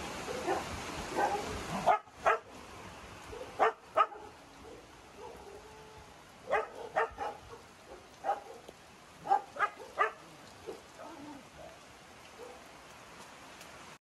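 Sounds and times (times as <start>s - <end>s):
rain hiss: 0.0s - 14.0s
dogs barking: 0.4s - 2.5s, 3.3s - 5.6s, 6.5s - 11.2s, 12.3s - 12.6s.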